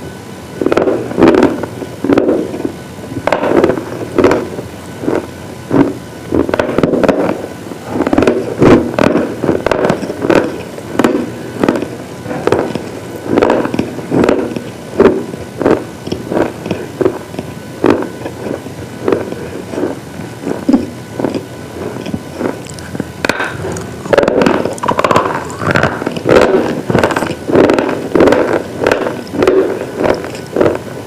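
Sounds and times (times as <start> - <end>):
slate pieces crunching: 22.0 - 30.8.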